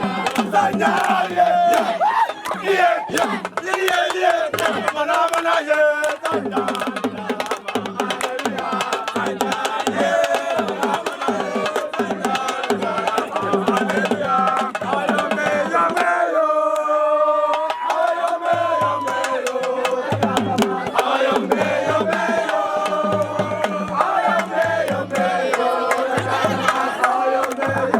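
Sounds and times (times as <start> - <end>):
steady low drum beat: 0.0 - 2.0, 18.5 - 27.0
voices singing: 0.0 - 27.9.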